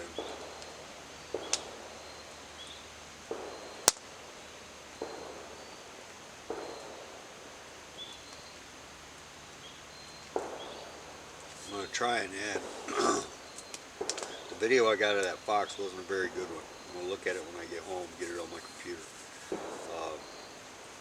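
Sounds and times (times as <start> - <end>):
distant gunshots: 0.0 - 2.2, 3.2 - 4.4, 5.0 - 7.5, 10.3 - 18.9, 19.5 - 20.6
campfire crack: 0.0 - 21.0.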